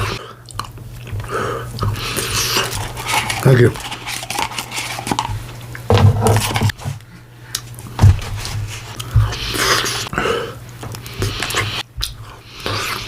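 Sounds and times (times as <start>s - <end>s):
person slurping and chewing: 0.0s - 5.5s, 8.8s - 13.0s.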